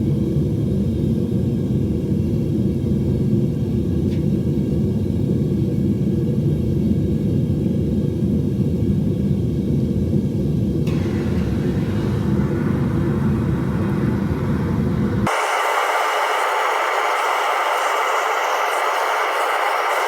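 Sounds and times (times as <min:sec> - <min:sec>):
furnace burner low rumble: 0:00.0 - 0:20.0.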